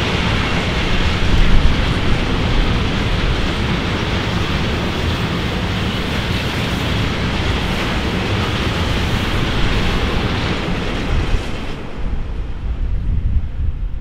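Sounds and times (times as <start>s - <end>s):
freight train wheels rumbling: 0.0s - 14.0s.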